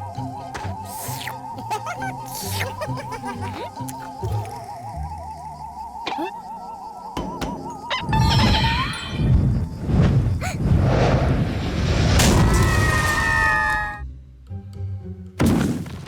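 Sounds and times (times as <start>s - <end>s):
background music: 0.0s - 9.4s, 13.3s - 16.0s
cartoon rumbling crash: 8.0s - 14.0s.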